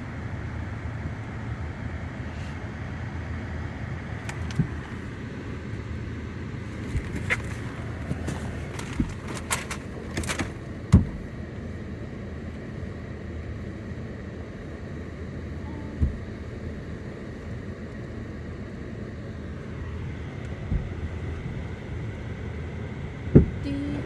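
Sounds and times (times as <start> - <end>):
car engine and road rumble: 0.0 - 24.0
soft thumps: 4.3 - 5.2, 6.8 - 11.4, 16.0 - 16.6, 19.7 - 22.1, 23.2 - 24.0.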